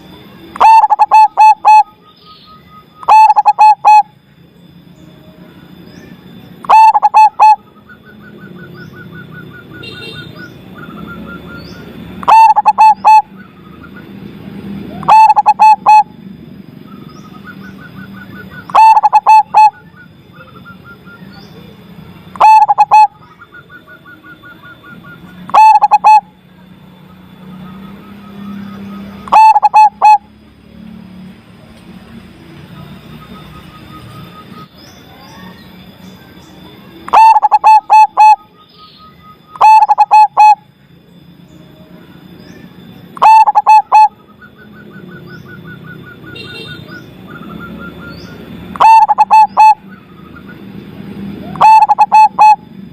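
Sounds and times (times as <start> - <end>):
dove cooing: 0.6 - 2.0, 3.0 - 4.1, 6.6 - 7.7, 10.8 - 13.6, 14.9 - 16.2, 18.2 - 20.5, 22.3 - 23.4, 24.0 - 26.3, 28.2 - 30.3, 37.1 - 38.5, 39.5 - 40.6, 43.2 - 44.3, 45.0 - 50.2, 51.4 - 52.7
small bird trilling: 0.6 - 4.1, 5.8 - 14.1, 14.9 - 16.2, 16.8 - 21.6, 22.3 - 26.3, 27.2 - 30.3, 33.1 - 40.6, 42.4 - 50.6, 51.4 - 52.7.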